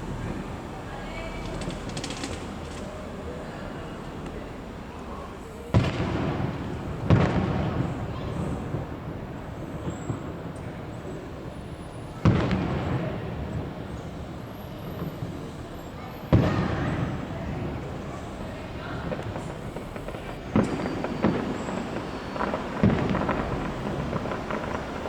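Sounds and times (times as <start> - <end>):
fireworks booming with rumbling echo: 0.0 - 25.0.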